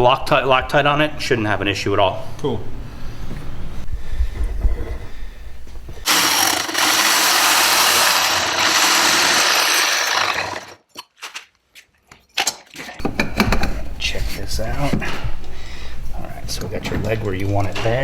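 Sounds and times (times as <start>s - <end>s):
power tool running: 6.0s - 10.8s.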